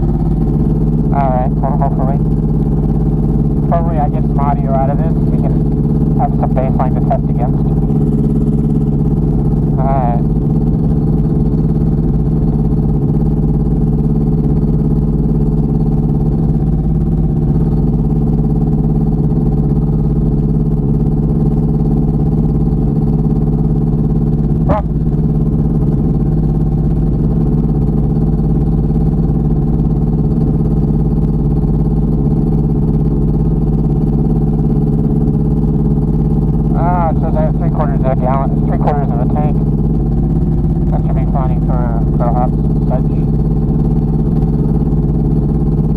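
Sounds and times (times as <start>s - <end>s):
aircraft engine idling: 0.0s - 45.9s.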